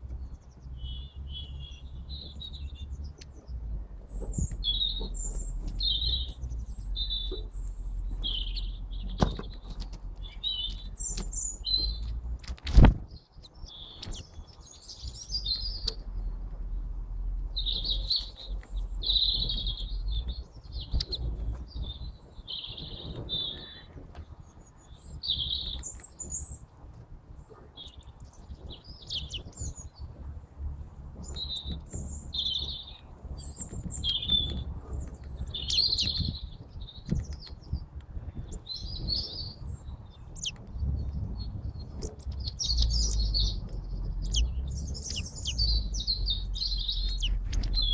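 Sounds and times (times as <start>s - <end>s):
tits chirping: 0.2s - 12.5s, 17.5s - 23.8s, 24.5s - 26.6s, 27.5s - 37.8s, 38.4s - 47.9s
low rumble: 28.0s - 47.9s.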